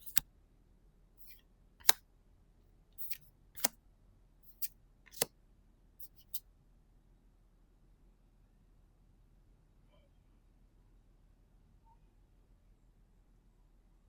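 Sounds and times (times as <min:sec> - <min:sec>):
trading cards snapping and clicking: 0:00.0 - 0:00.2, 0:03.0 - 0:03.8, 0:04.5 - 0:05.3, 0:06.0 - 0:06.4.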